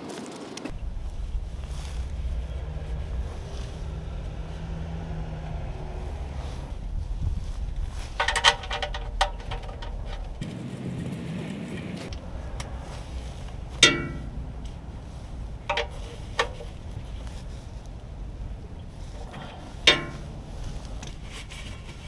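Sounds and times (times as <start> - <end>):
low background rumble: 0.7 - 22.0
sharp ringing knocks: 13.8 - 14.3.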